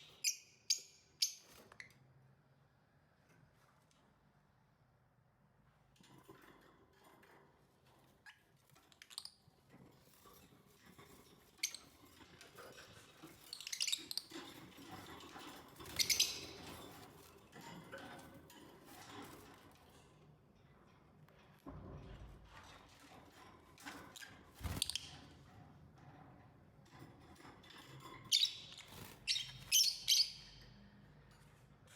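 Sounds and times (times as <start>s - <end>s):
lovebirds chirping: 15.9s - 16.7s, 28.3s - 30.7s.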